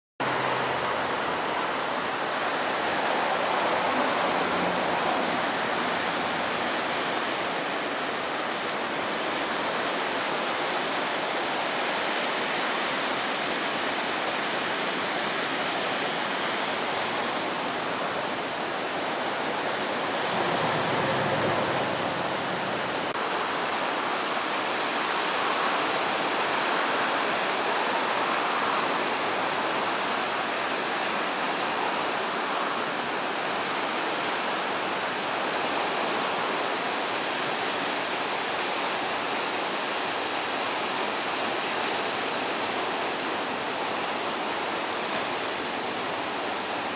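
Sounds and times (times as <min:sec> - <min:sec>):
ocean waves breaking: 0:00.2 - 0:46.9.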